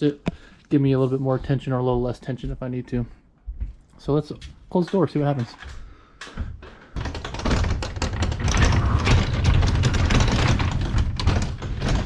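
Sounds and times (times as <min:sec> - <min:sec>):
garage door rattling: 0:06.6 - 0:12.0.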